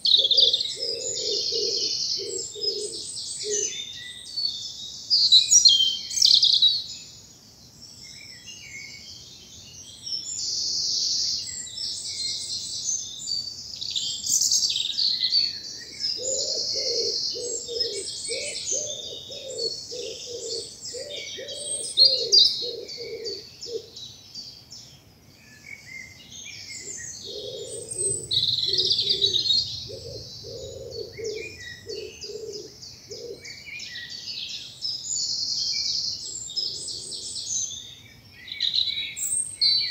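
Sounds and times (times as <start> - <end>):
low cooing call: 0.0 - 3.8, 15.8 - 24.0, 26.9 - 33.7
songbirds singing: 0.0 - 39.9.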